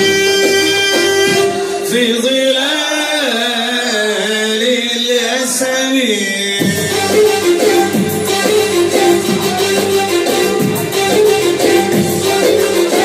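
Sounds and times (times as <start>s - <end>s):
band accompaniment: 0.0s - 2.0s, 6.6s - 13.0s.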